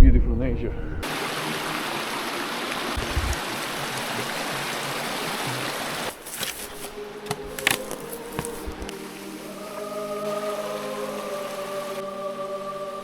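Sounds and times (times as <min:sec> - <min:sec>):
mountain stream rushing: 0:01.0 - 0:13.0
faint sustained tones: 0:07.0 - 0:13.0.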